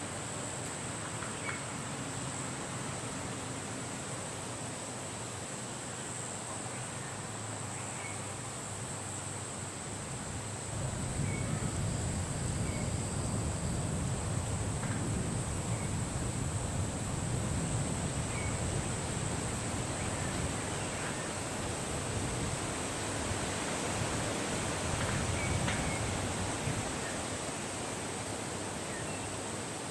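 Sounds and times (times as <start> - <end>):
wind rumble on the microphone: 9.8 - 27.6.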